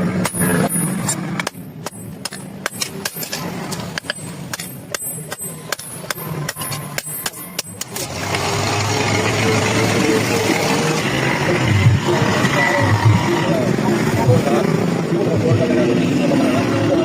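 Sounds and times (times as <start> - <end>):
hammer striking iron: 0.0 - 8.1.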